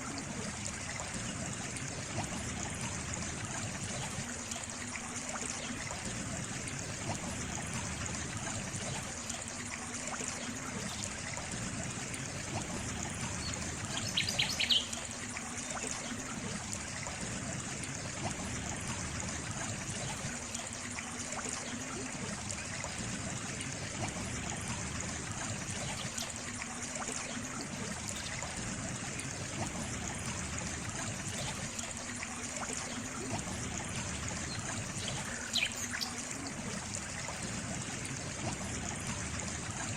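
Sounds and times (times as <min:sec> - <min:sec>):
water trickling: 0:00.0 - 0:39.9
bird chirping: 0:14.0 - 0:15.0, 0:35.3 - 0:36.2.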